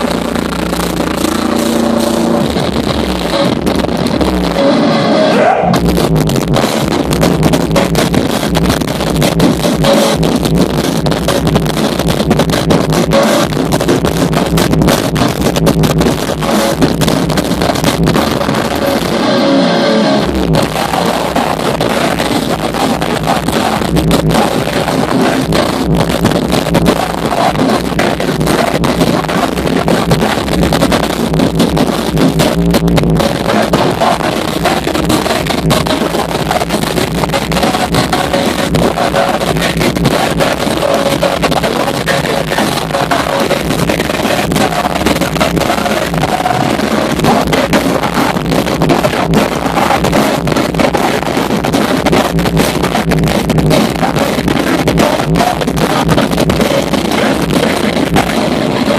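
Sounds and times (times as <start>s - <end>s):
metalcore band playing live: 0.0s - 58.9s.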